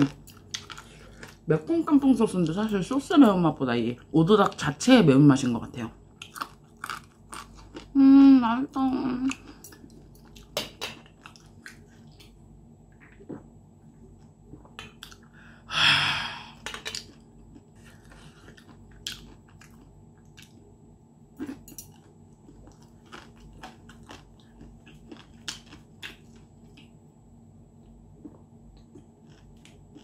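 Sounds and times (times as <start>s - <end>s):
crunchy chewing: 0.0s - 1.5s, 6.1s - 8.0s, 9.3s - 12.4s, 16.7s - 20.7s, 21.4s - 27.0s, 27.8s - 30.0s.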